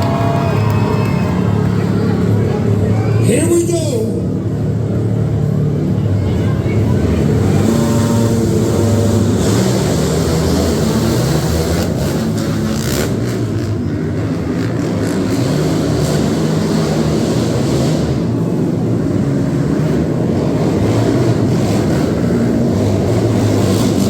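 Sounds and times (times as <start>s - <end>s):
monster truck engines running: 0.0s - 24.0s.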